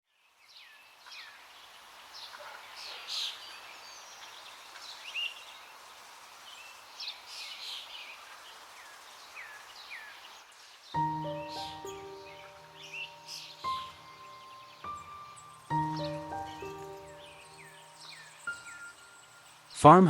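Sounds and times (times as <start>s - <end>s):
soft outdoor hiss: 0.1s - 20.0s
birds chirping: 6.6s - 20.0s.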